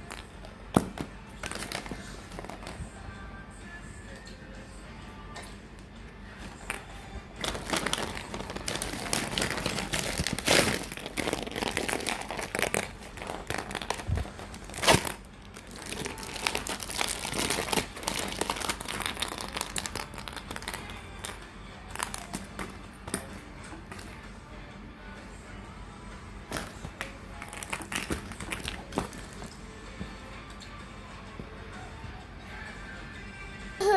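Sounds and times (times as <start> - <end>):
plastic packets crinkling: 7.4 - 22.7, 26.6 - 29.5.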